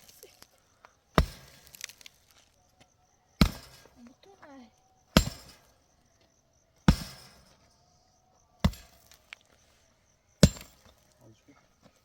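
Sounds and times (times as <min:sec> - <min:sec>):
sharp chopping blows with ringing: 0:01.2 - 0:02.0, 0:03.4 - 0:04.0, 0:05.1 - 0:05.8, 0:06.8 - 0:07.6, 0:08.6 - 0:09.3, 0:10.4 - 0:11.0.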